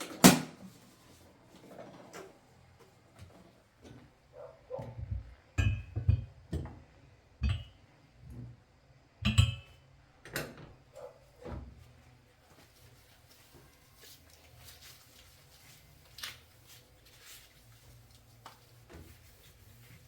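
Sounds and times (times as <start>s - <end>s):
kitchenware clinking and knocking: 5.6s - 6.7s, 7.4s - 7.8s, 9.2s - 9.7s.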